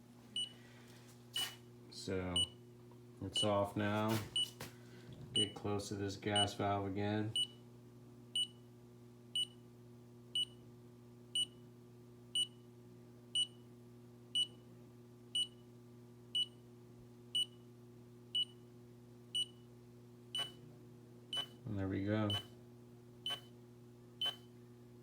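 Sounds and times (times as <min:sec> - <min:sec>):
low electrical hum: 0:00.0 - 0:25.0
gas detector beeping: 0:20.4 - 0:20.6, 0:21.4 - 0:21.6, 0:22.3 - 0:22.5, 0:23.3 - 0:23.5, 0:24.2 - 0:24.4.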